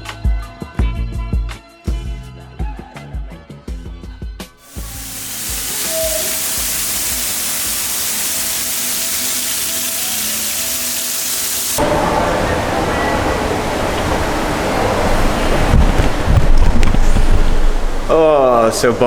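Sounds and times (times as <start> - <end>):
heavy rain hissing: 4.6 - 19.0
wind on microphone: 12.7 - 18.1.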